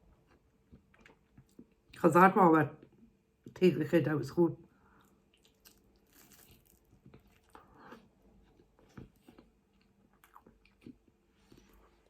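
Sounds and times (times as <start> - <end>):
person chewing: 0.1 - 2.0, 4.9 - 12.0.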